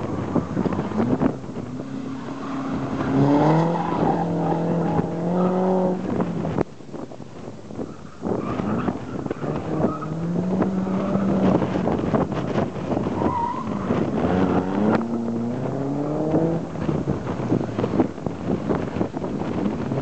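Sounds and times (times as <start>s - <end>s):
car engine revving: 0.0s - 6.6s, 8.2s - 17.3s
wind buffeting microphone: 0.0s - 20.0s.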